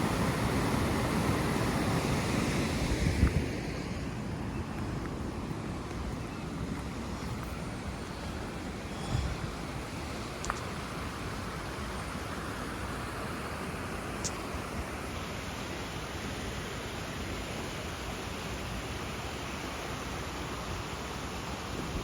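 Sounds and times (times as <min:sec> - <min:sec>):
creek water rushing: 0:00.0 - 0:22.0
small clicks: 0:10.4 - 0:10.7.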